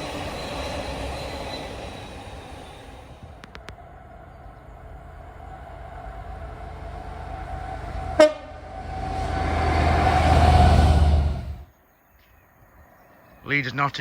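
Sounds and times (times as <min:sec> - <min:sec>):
freight train rumbling: 0:00.0 - 0:11.7
train horn toot: 0:07.6 - 0:11.6.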